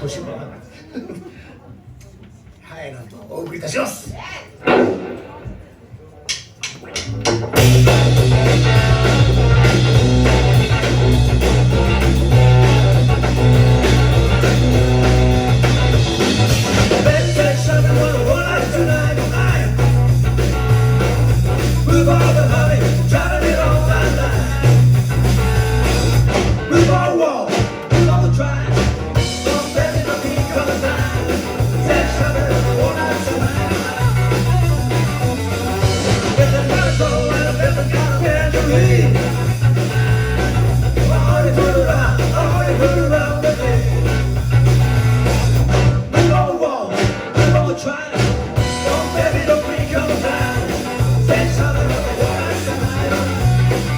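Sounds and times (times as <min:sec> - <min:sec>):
rock band playing: 0:04.6 - 0:53.9
person singing: 0:17.0 - 0:20.0, 0:21.6 - 0:24.8, 0:26.7 - 0:35.2, 0:36.3 - 0:39.6, 0:40.9 - 0:44.2, 0:46.1 - 0:53.9.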